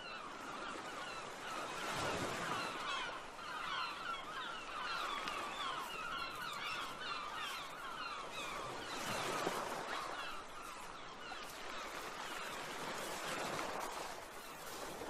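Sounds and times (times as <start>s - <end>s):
birds chirping: 2.5s - 12.6s.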